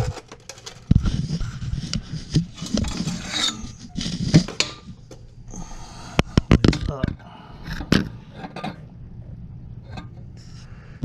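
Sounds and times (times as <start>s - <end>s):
scraping and rubbing handling noise: 0.0s - 5.3s.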